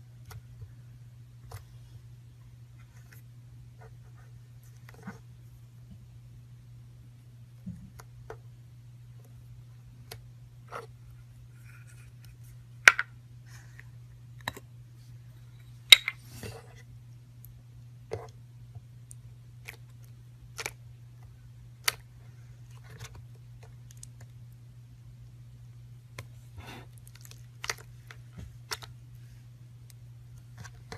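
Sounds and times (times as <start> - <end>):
faint low hum: 0.0 - 30.9.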